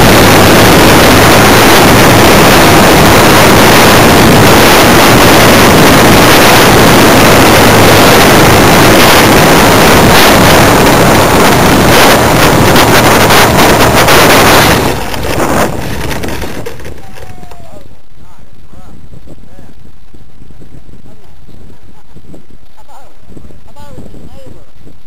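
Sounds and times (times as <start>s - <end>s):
model plane engine: 0.0s - 17.3s
rushing wind: 0.0s - 25.0s.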